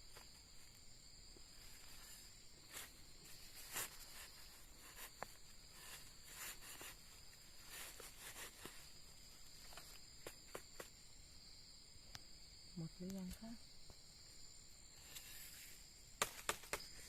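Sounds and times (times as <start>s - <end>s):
soft rustles and light clicks: 0.0s - 11.0s
insects droning: 0.0s - 17.0s.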